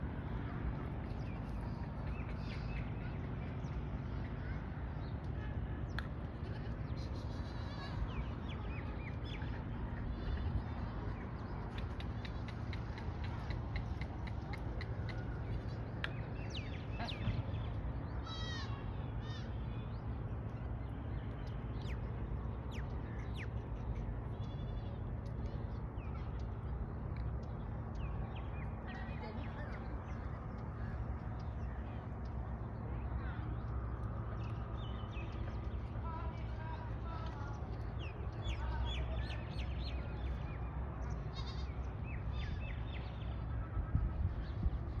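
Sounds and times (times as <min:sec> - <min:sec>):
steady low rumble: 0:00.0 - 0:45.0
small birds chirping: 0:00.1 - 0:45.0.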